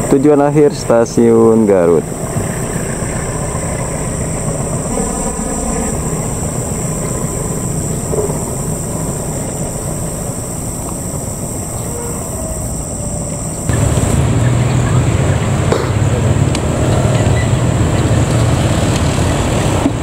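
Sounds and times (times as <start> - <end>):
distant passenger train rumbling: 0.0 - 20.0.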